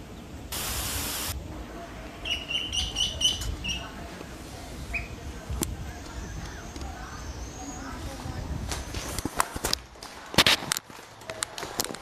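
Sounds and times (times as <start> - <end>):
rushing noise: 0.5 - 1.4
ducklings peeping: 2.2 - 3.9.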